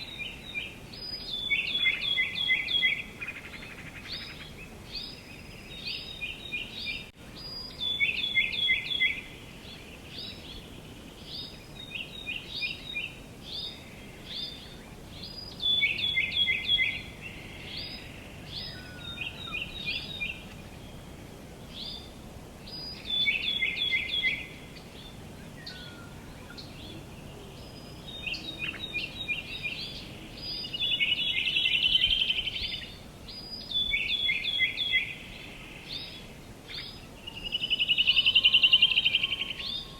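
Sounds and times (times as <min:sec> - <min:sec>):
songbirds singing: 0:00.0 - 0:39.9
steady background hiss: 0:00.0 - 0:39.9.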